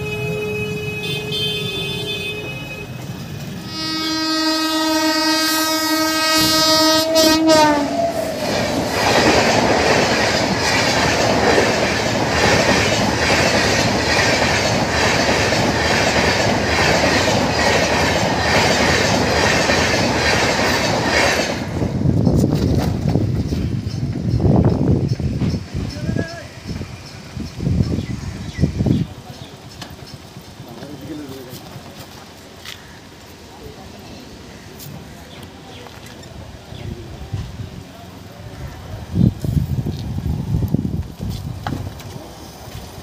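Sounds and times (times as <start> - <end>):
train horn: 0.0 - 3.0, 3.6 - 8.4
train wheels clattering over rail joints: 8.4 - 27.2, 41.0 - 43.0.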